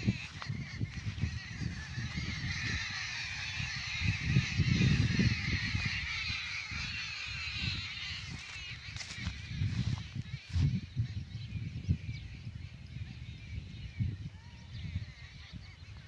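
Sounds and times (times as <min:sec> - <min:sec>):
birds chirping in chorus: 0:00.0 - 0:16.0.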